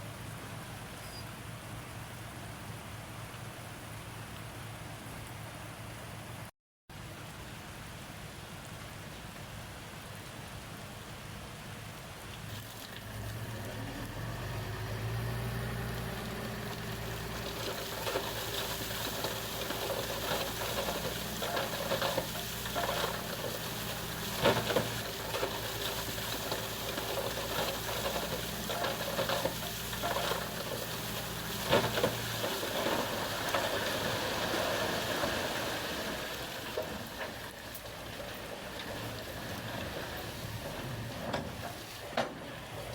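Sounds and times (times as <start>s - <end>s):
bulldozer engine running: 13.2s - 42.9s.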